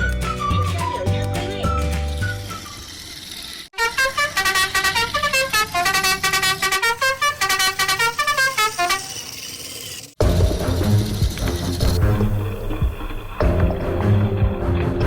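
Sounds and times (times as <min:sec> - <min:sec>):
fast tune of buzzy horn-like notes: 0:03.8 - 0:09.4.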